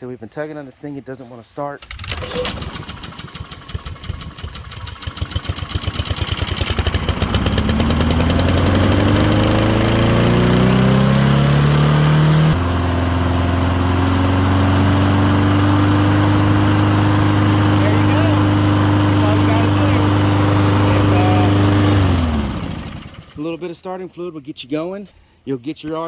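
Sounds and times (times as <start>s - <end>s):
lawn mower engine starting and running: 1.8s - 23.5s.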